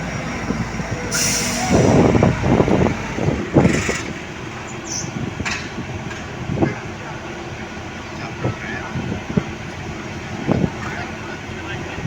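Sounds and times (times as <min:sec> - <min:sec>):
rough mechanical noise: 0:00.0 - 0:06.2
heavy truck running: 0:00.0 - 0:12.0
air hiss: 0:01.1 - 0:02.2.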